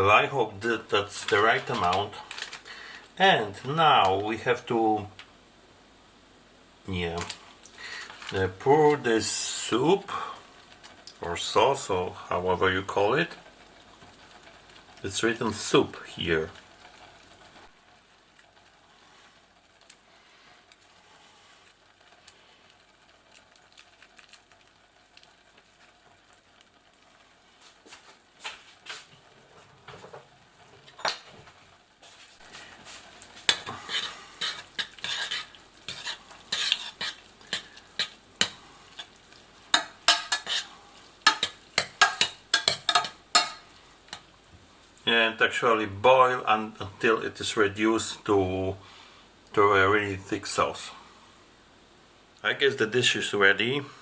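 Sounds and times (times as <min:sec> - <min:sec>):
faint steady hiss: 0:00.0 - 0:54.0
utensil scraping a pot: 0:00.7 - 0:02.6, 0:32.0 - 0:44.3.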